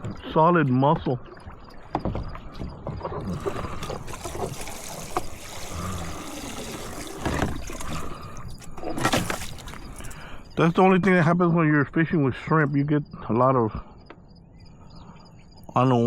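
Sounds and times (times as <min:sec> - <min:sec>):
knocks: 0:01.8 - 0:03.4
water splashing and trickling: 0:03.2 - 0:11.1
splashy bursts: 0:03.3 - 0:08.4.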